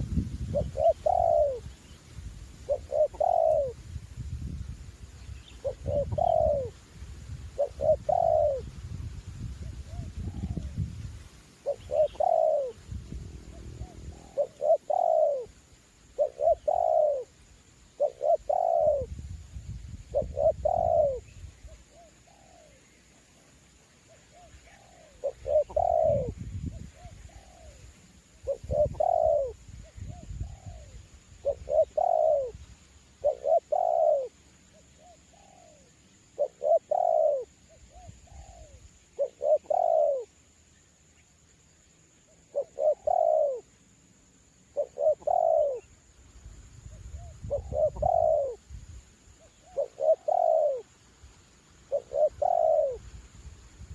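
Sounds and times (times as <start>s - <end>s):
dove cooing: 0.0s - 2.0s, 2.6s - 3.8s, 5.5s - 6.8s, 7.6s - 8.7s, 9.6s - 10.8s, 11.6s - 19.2s, 20.1s - 22.8s, 24.1s - 32.6s, 33.2s - 40.3s, 42.3s - 43.7s, 44.7s - 45.9s, 46.9s - 48.6s, 49.4s - 50.9s, 51.9s - 53.0s
wind rumbling on microphone: 0.0s - 15.4s, 18.3s - 21.8s, 25.2s - 34.2s, 46.4s - 49.4s, 52.1s - 53.9s.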